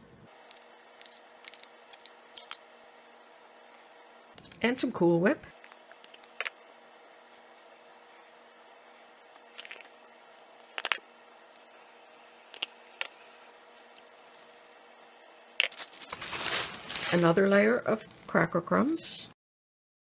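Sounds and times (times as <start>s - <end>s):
faint room hum: 0.0s - 19.4s
spoon spreading whipped topping: 0.3s - 4.3s, 5.5s - 16.2s.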